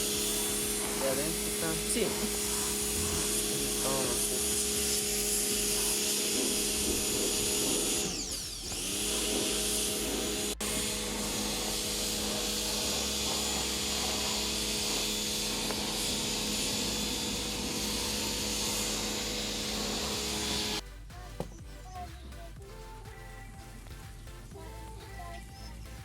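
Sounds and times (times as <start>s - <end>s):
motor-driven machine humming: 0.0s - 20.8s.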